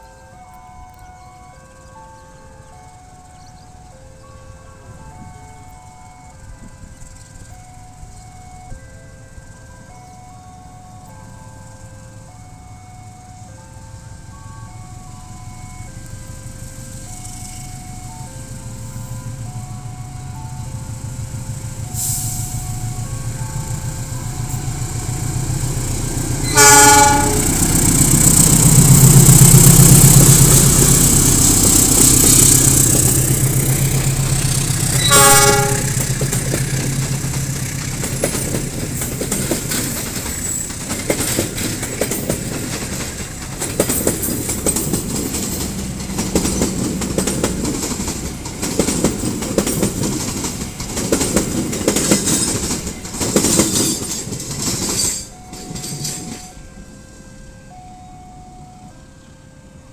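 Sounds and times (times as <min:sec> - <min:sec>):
locomotive engine drone: 0:00.0 - 0:59.9
train wheels clattering over rail joints: 0:24.4 - 0:56.5
locomotive horn blasts: 0:26.3 - 0:28.0, 0:34.8 - 0:36.2.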